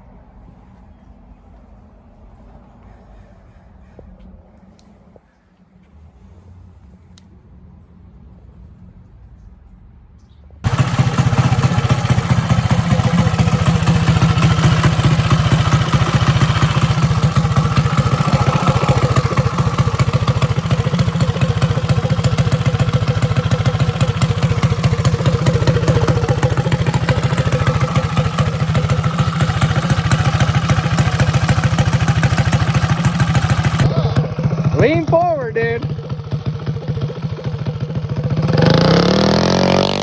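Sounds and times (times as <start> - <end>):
small engine running loud: 10.7 - 40.0.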